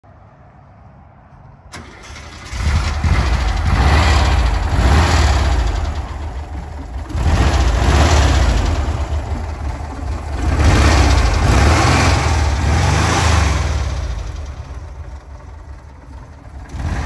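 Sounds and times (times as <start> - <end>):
engine idling: 1.7 - 17.0.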